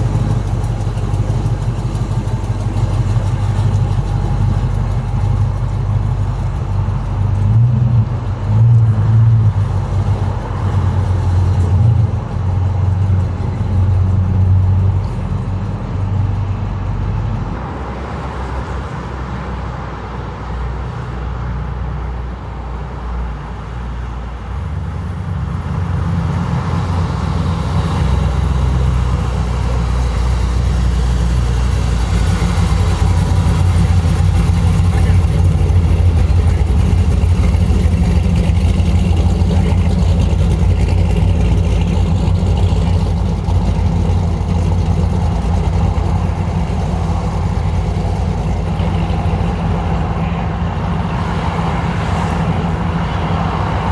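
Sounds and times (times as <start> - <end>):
car engines rumbling: 0.0 - 53.9.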